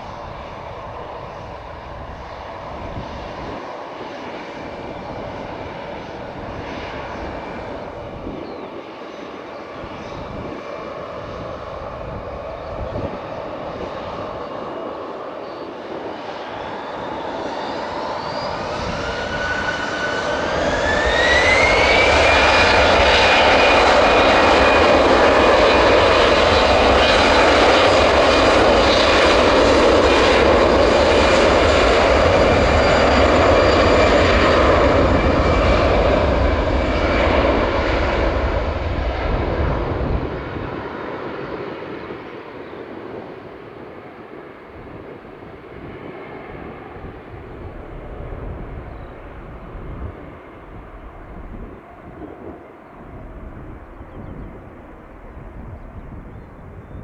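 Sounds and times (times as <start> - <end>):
jet engines spooling up: 0.0 - 43.8.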